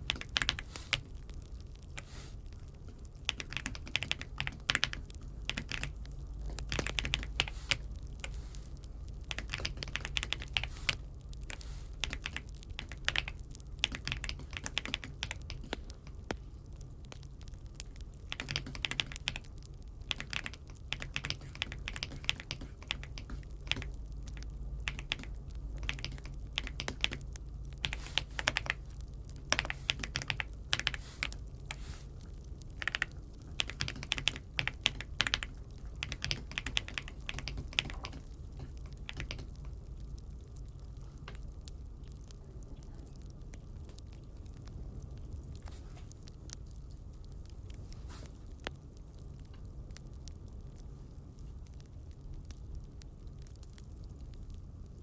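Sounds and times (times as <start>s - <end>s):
mechanical keyboard typing: 0.0s - 1.1s, 3.0s - 8.4s, 9.3s - 16.3s, 17.9s - 31.8s, 32.7s - 39.8s
steady low hum: 0.0s - 55.0s.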